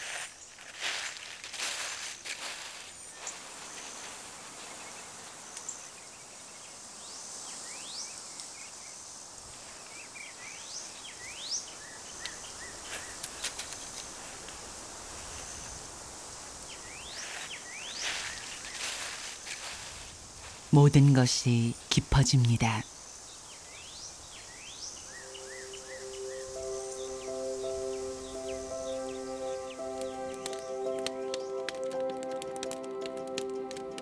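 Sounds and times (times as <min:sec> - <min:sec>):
steady background hiss: 0:00.0 - 0:34.0
bird calling in rising whistles: 0:24.5 - 0:31.6.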